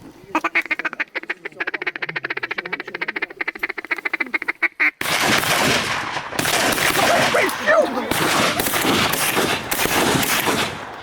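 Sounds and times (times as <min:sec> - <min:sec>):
duck call chuckle: 0:00.3 - 0:05.0
shotgun blasts: 0:05.0 - 0:11.0.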